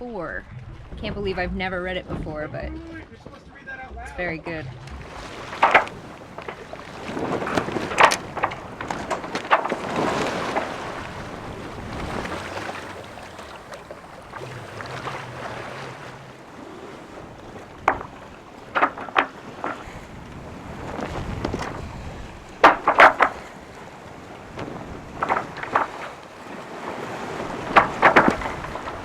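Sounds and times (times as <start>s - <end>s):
water sloshing along a hull: 0.0s - 29.0s
wind on the microphone: 0.0s - 29.0s
sharp knocks: 4.8s - 10.7s, 17.7s - 19.9s, 22.5s - 23.6s, 24.6s - 26.2s, 27.7s - 29.0s.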